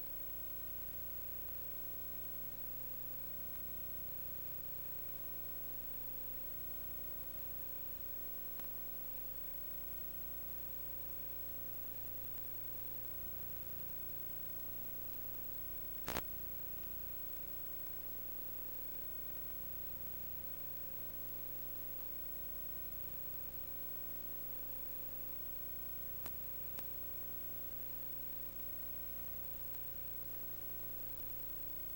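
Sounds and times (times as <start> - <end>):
electrical hum and hiss: 0.0 - 31.9.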